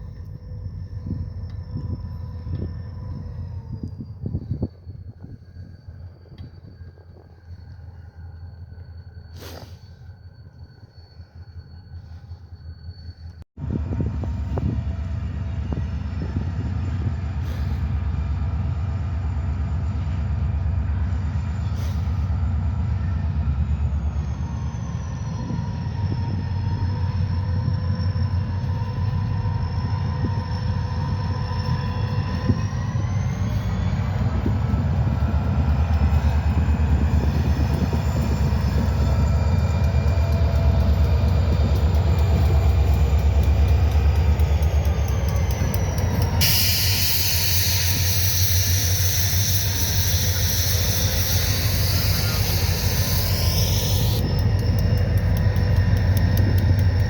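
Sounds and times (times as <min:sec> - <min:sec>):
locomotive engine drone: 0:00.0 - 0:57.0
high whine: 0:22.9 - 0:57.0.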